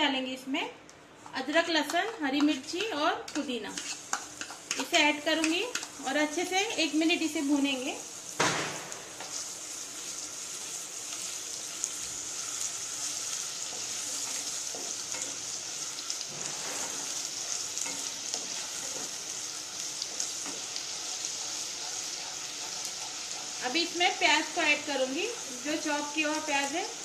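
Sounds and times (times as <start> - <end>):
vegetables sizzling in hot oil: 2.2 - 27.0.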